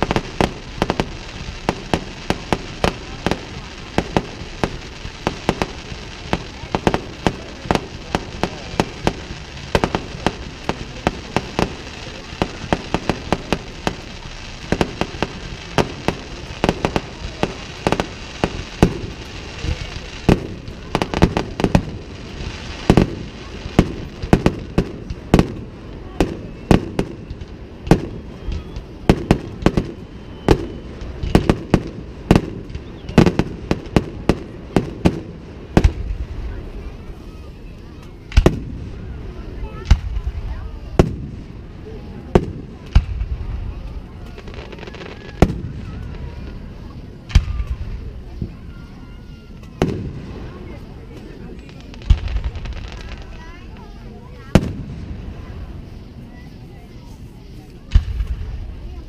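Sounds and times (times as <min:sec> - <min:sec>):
fireworks bursting with sharp bangs: 0:00.0 - 0:59.0.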